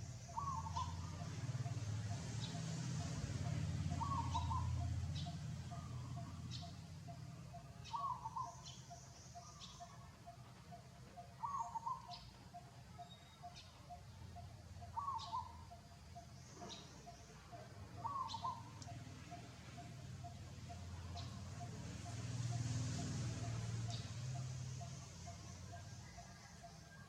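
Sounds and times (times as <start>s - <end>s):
fast pulsing call: 0.0s - 16.3s.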